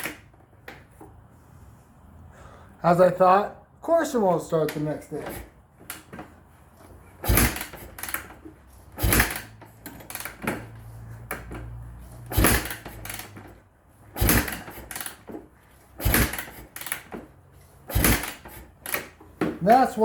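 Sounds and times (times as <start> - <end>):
dirt bike kick-start: 7.1 - 20.0.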